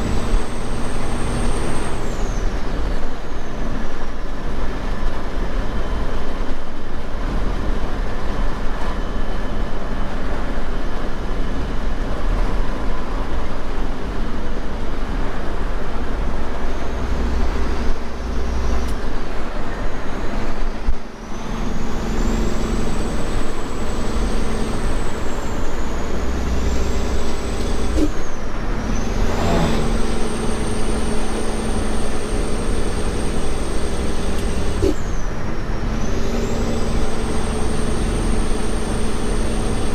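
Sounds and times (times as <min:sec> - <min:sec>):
diesel engine and road rumble: 0:00.0 - 0:39.9
high thin whine: 0:16.5 - 0:39.9.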